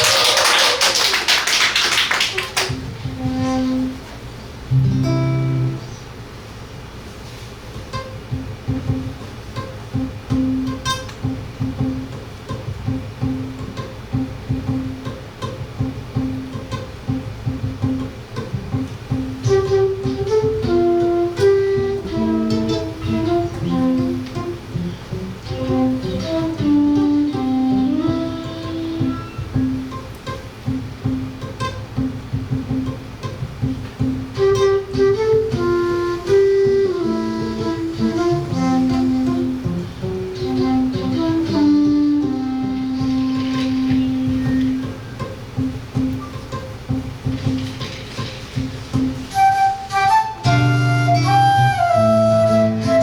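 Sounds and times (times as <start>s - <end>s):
audience applause: 0.0s - 3.0s
acoustic guitar notes: 2.4s - 53.0s
flute melody: 19.2s - 29.9s, 34.1s - 45.7s, 49.0s - 53.0s.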